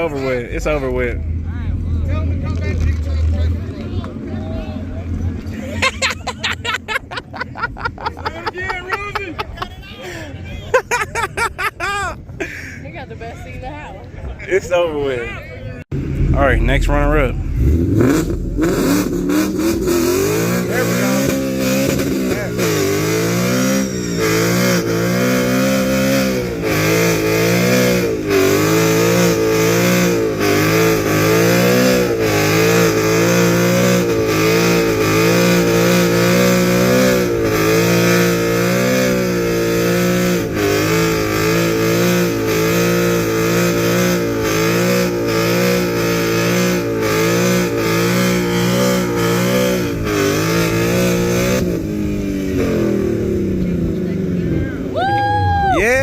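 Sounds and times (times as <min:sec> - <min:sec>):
engine revving in burnout: 0:16.0 - 0:54.7.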